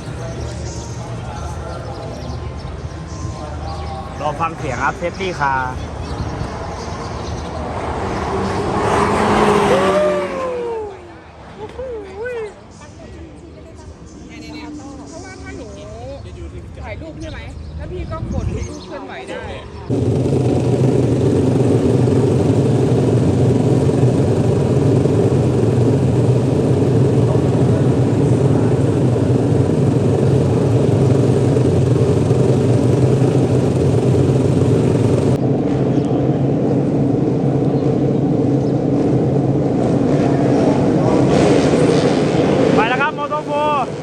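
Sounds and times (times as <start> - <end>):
racing motorcycle engines droning: 0.0 - 11.4, 19.8 - 44.0.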